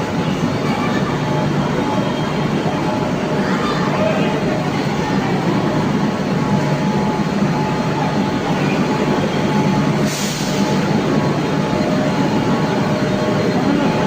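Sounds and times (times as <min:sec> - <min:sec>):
metro train rumble: 0:00.0 - 0:14.0
brief hiss: 0:10.0 - 0:10.8.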